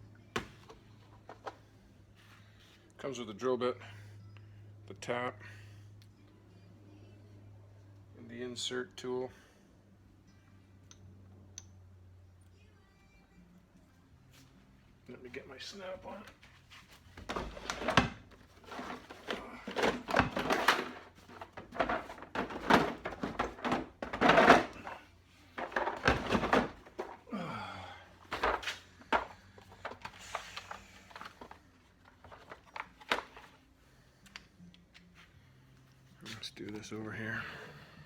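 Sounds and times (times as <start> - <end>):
metal tools knocking and clattering: 18.7 - 25.0.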